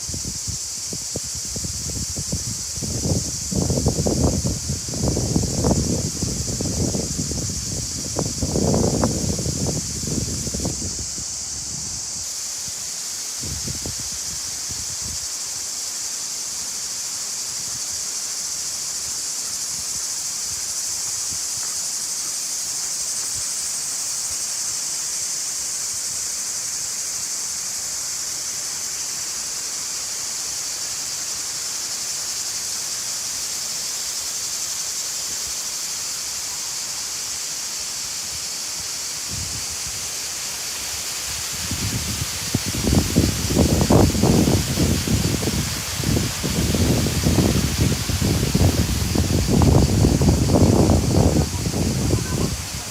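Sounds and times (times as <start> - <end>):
high-pitched insects buzzing: 0.0 - 52.9
running water: 40.2 - 52.9.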